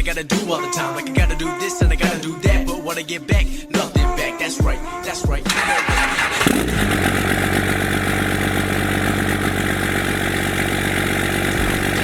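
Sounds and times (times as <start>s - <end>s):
diesel truck engine idling: 5.2s - 12.0s.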